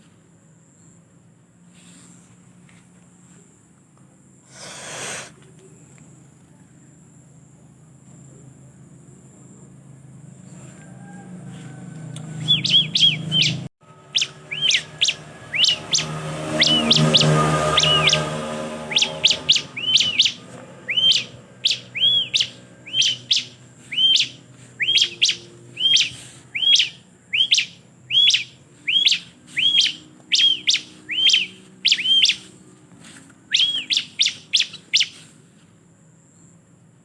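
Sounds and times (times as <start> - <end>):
bird sharp rising chirps: 12.3 - 32.7, 33.4 - 35.3.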